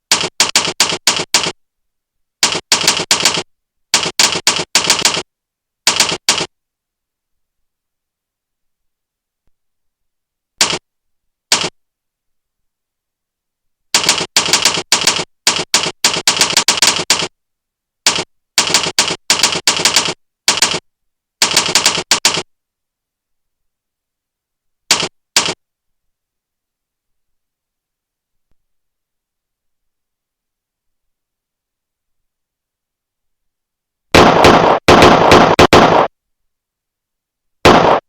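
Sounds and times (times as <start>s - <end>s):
typewriter keystroke clacks: 0.0s - 1.6s, 2.4s - 5.3s, 5.9s - 6.5s, 10.6s - 10.8s, 11.5s - 11.8s, 14.0s - 17.3s, 18.1s - 20.8s, 21.4s - 22.5s, 24.9s - 25.6s.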